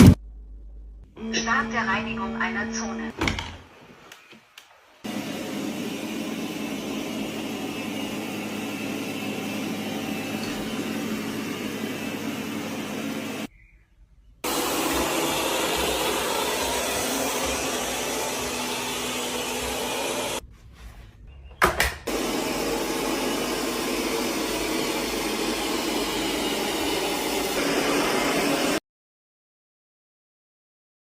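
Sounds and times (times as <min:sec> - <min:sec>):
robot vacuum whirring: 0:05.1 - 0:13.5, 0:14.4 - 0:20.4, 0:22.1 - 0:28.8.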